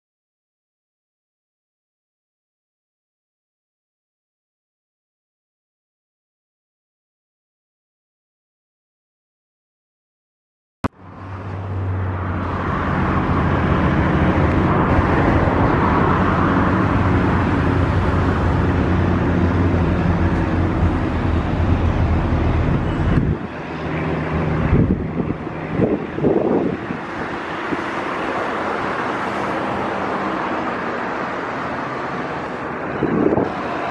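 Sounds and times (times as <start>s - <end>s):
propeller aircraft engines droning: 11.0s - 33.9s.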